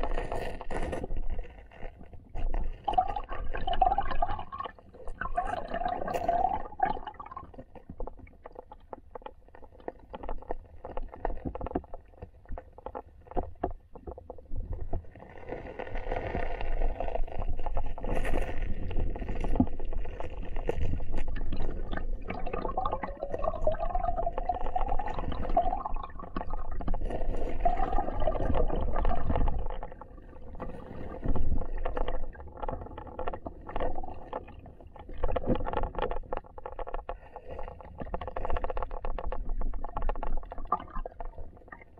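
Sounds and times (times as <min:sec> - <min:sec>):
underwater clicks and knocks: 0:00.0 - 0:15.2, 0:16.3 - 0:41.9
muffled underwater river rumble: 0:16.7 - 0:41.9.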